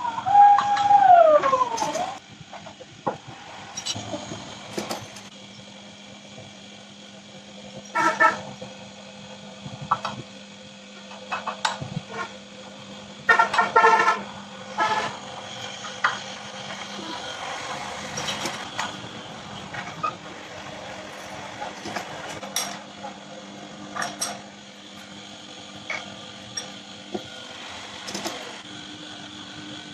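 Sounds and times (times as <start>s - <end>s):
lathe humming: 1.6s - 29.9s
vehicle horns honking: 7.9s - 8.4s, 13.3s - 15.2s.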